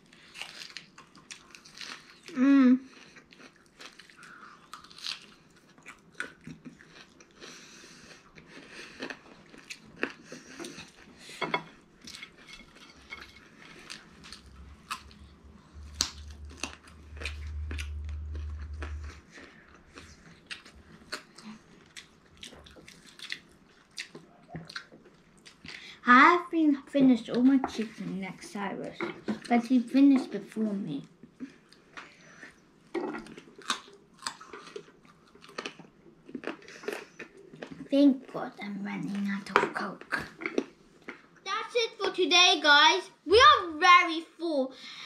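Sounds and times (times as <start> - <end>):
chewing and biting food: 0.1 - 11.2, 12.0 - 25.8, 32.4 - 37.9
steady low hum: 10.3 - 21.6.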